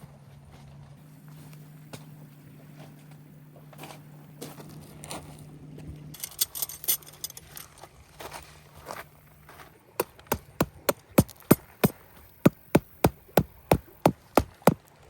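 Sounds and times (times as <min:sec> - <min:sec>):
rapid hammering: 0:10.0 - 0:14.8.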